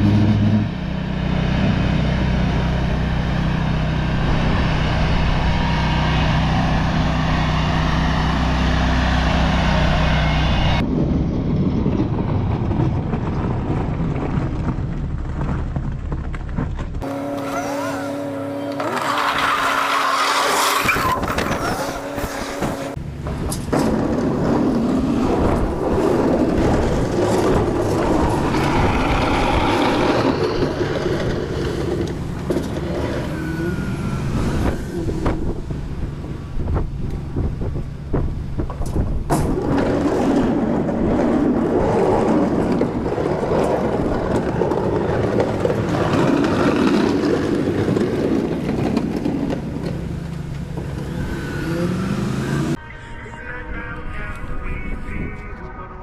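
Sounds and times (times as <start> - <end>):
vehicle engine running: 22.6 - 39.6.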